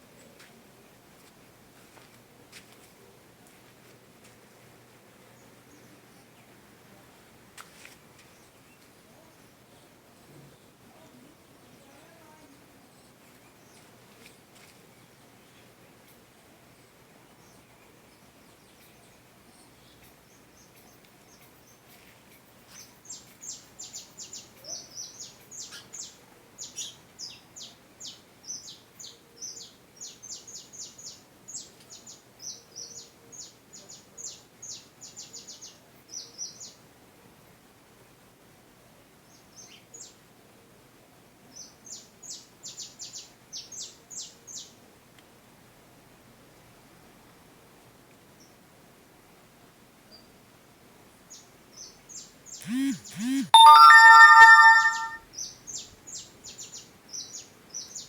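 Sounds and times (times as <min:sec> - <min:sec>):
faint background hiss: 0:00.0 - 0:55.2
bird chirping: 0:52.6 - 0:55.2.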